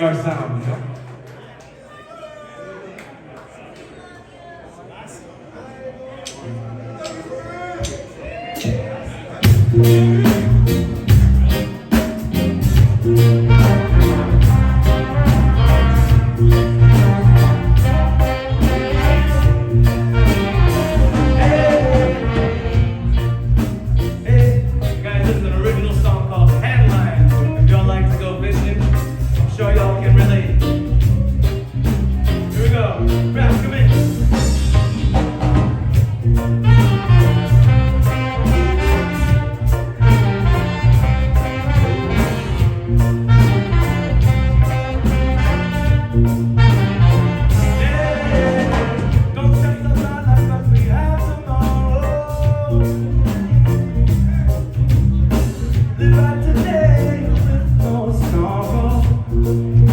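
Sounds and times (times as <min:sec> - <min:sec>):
live band playing: 0:08.4 - 0:59.9.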